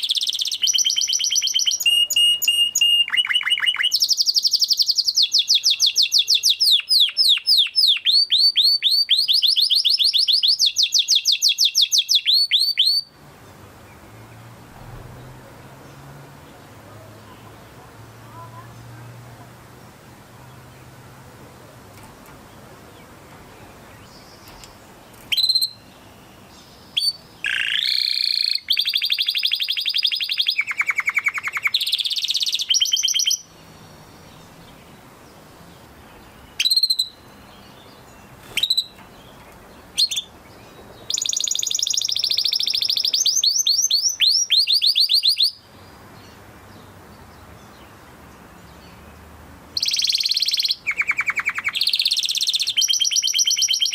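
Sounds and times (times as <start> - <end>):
canary singing trills: 0.0 - 19.0, 22.3 - 48.0, 49.8 - 53.9.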